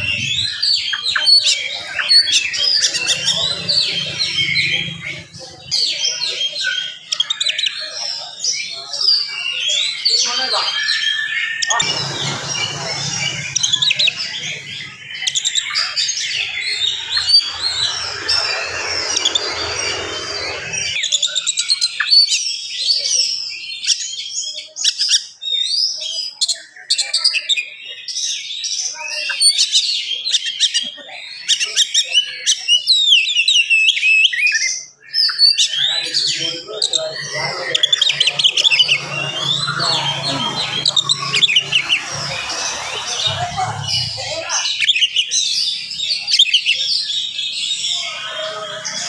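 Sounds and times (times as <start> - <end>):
songbird whistling and chirping: 0.0 - 49.0.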